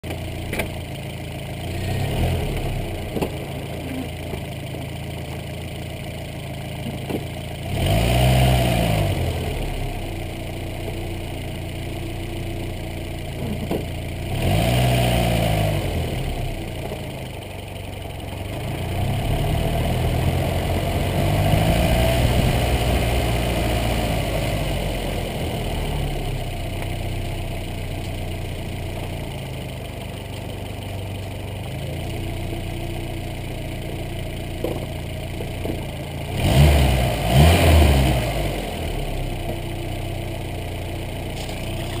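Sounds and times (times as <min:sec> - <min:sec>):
car engine idling and revving: 0:00.0 - 0:42.0.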